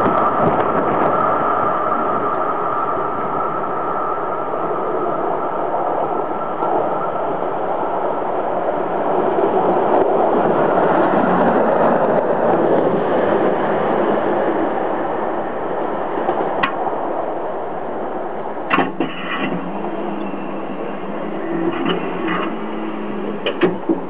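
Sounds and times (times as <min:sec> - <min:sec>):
train rumble: 0:00.0 - 0:24.0
sharp clicks and knocks near microphone: 0:16.3 - 0:16.8, 0:18.7 - 0:19.6, 0:23.4 - 0:24.0.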